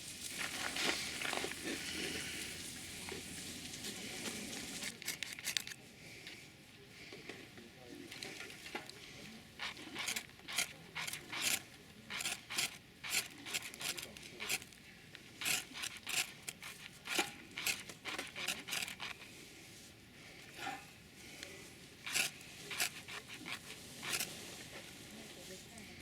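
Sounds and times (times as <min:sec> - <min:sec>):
short scraping strokes: 0:22.0 - 0:24.8.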